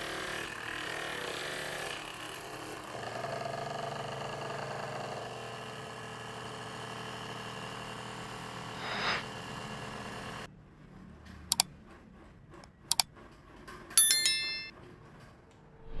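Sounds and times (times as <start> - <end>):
bell-like ding: 14.0 - 14.7.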